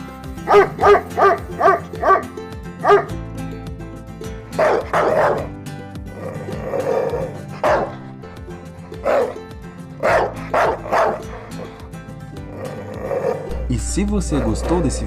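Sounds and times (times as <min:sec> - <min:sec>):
background music: 0:00.0 - 0:15.0
dog barking: 0:00.4 - 0:03.1, 0:04.6 - 0:05.5, 0:07.2 - 0:08.0, 0:09.0 - 0:09.4, 0:10.0 - 0:11.8.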